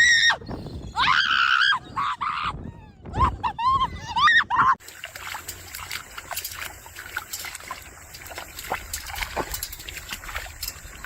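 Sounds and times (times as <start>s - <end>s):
water trickling and splashing: 4.8s - 11.0s.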